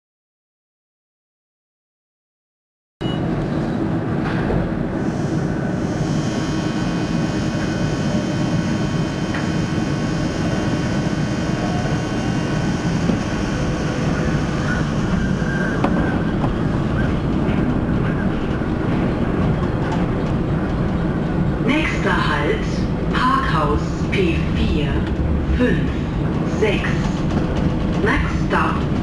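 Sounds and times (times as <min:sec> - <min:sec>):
suspended train car rumble: 0:03.2 - 0:29.0.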